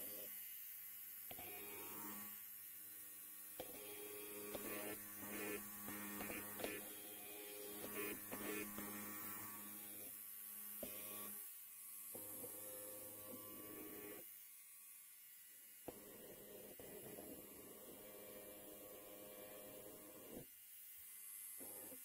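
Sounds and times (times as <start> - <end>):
electric hair clipper buzzing: 0.0 - 22.0.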